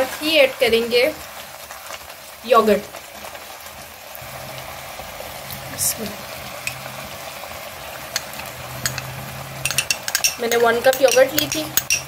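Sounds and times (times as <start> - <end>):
food sizzling in a wok: 0.0 - 12.0
spatula clicking against pan: 8.1 - 12.0.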